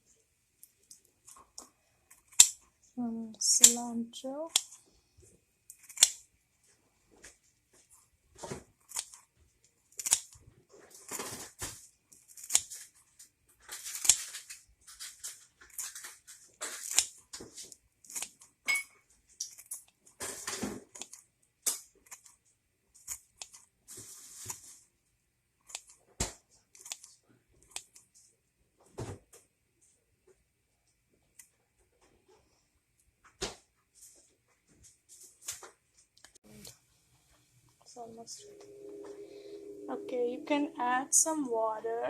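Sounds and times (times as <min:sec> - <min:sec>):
utensils scraping and snipping: 0:05.7 - 0:06.2, 0:09.9 - 0:11.6, 0:12.2 - 0:13.0, 0:13.6 - 0:18.5.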